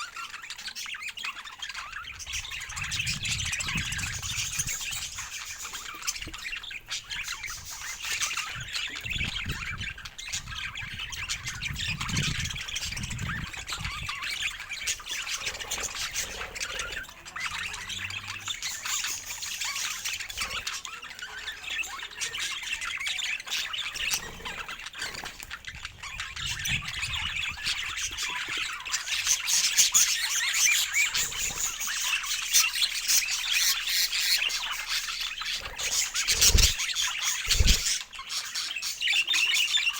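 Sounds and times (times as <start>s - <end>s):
budgerigars chattering: 0.0s - 39.9s
budgerigar squawks: 35.1s - 38.8s.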